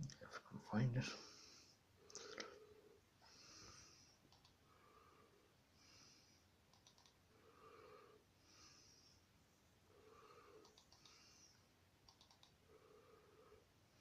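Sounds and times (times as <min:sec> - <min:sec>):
faint breathing: 0:01.0 - 0:11.8, 0:12.6 - 0:14.0
computer mouse clicks: 0:04.3 - 0:04.6, 0:06.7 - 0:07.2, 0:10.6 - 0:11.2, 0:12.0 - 0:12.6.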